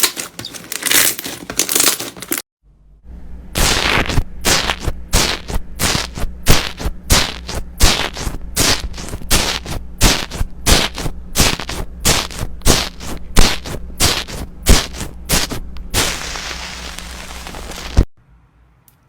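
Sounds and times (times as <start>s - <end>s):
low steady hum: 2.6s - 19.0s
slime popping crackles: 3.6s - 18.0s.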